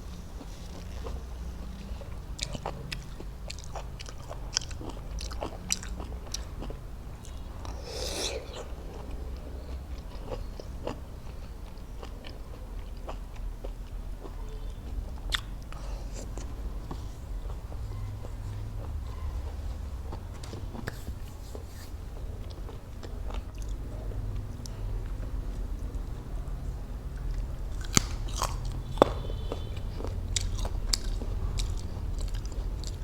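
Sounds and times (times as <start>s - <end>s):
wet mouth clicks: 7.2s - 9.4s.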